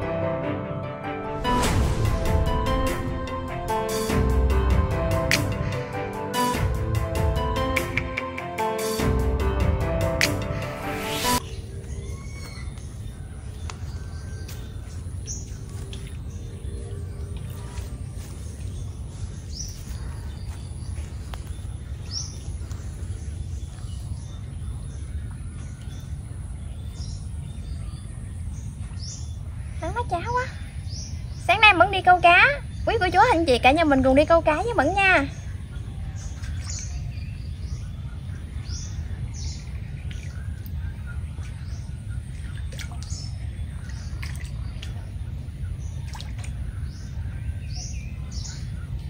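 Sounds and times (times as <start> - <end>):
steady low rumble: 1.2 - 7.7, 34.4 - 49.0
birds chirping: 2.3 - 49.0.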